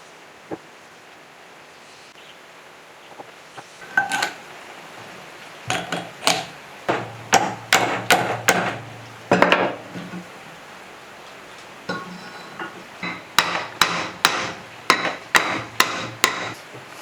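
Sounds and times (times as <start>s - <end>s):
ringing hammer strikes: 5.7s - 10.2s, 11.9s - 16.6s.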